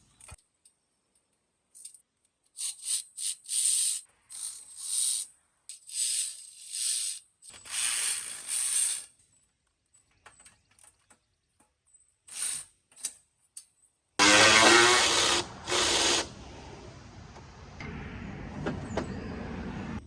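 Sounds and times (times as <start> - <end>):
mechanical clicking-rasping bursts: 14.2 - 16.3.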